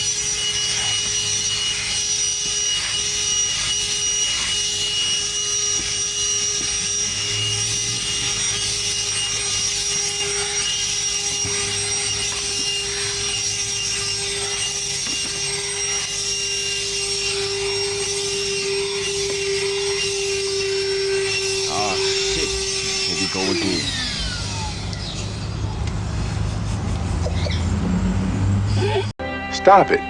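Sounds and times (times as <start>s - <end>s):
pressure washer spraying water: 0.0s - 29.1s.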